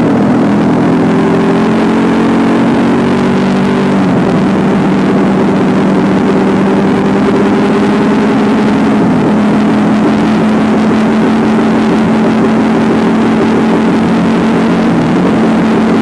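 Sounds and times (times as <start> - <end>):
motorcycle engine cruising: 0.0 - 16.0
wind and road noise: 0.0 - 16.0.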